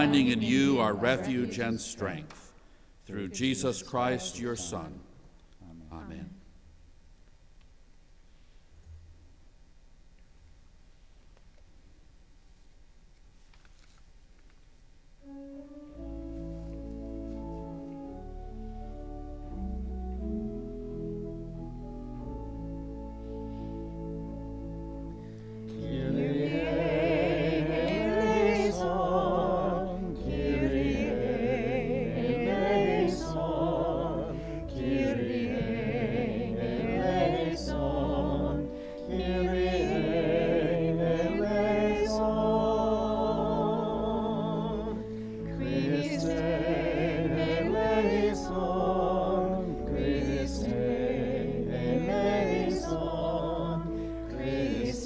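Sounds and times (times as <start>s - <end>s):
sustained keyboard chords: 15.2s - 55.0s
person singing with vibrato: 25.7s - 55.0s.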